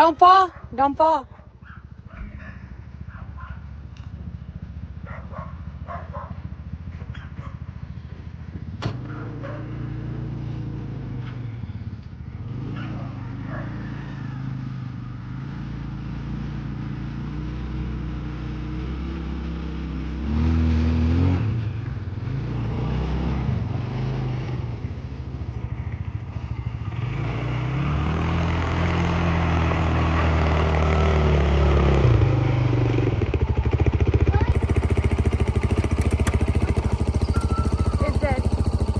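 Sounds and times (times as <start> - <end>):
vehicle engine running: 32.5 - 38.9.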